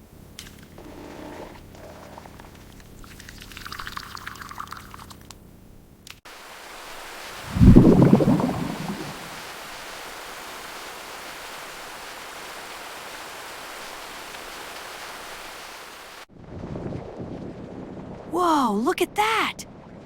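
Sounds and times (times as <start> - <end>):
rain hissing: 6.3 - 16.3
thunder clap rumbling: 7.5 - 9.3.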